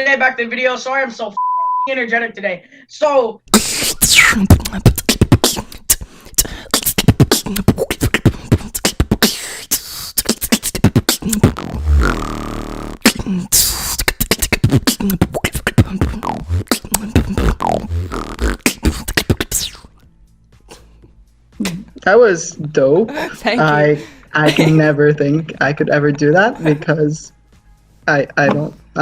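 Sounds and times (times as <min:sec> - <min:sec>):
beatboxed bass tone: 0:03.5 - 0:20.0, 0:21.6 - 0:22.0
beatboxing mouth drum hits: 0:03.5 - 0:20.0, 0:21.6 - 0:22.0.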